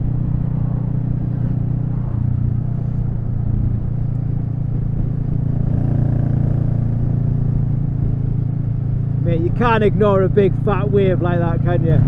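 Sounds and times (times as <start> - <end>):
wind on microphone: 0.0 - 8.9
motorcycle engine running: 0.0 - 12.0.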